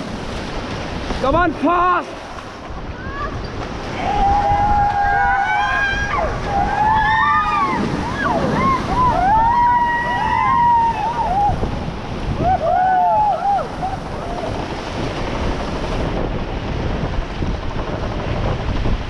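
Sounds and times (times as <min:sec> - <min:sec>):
whitewater rushing and splashing: 0:00.0 - 0:19.0
wind buffeting microphone: 0:00.0 - 0:19.0
people whooping and shouting: 0:03.0 - 0:11.7, 0:12.3 - 0:14.5.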